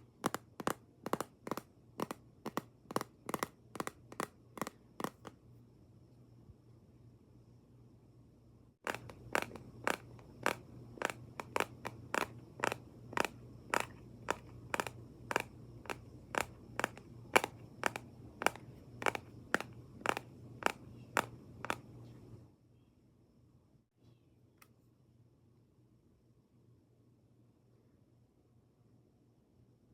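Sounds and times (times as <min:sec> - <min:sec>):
sharp tapping: 0:00.0 - 0:05.3, 0:08.8 - 0:21.8.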